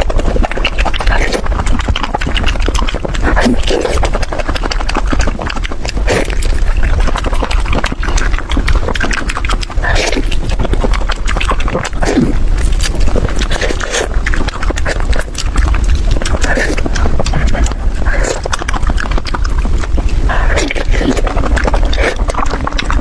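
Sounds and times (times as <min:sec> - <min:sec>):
chewing and crunching: 0:00.0 - 0:23.0
wet mouth noises: 0:00.0 - 0:23.0.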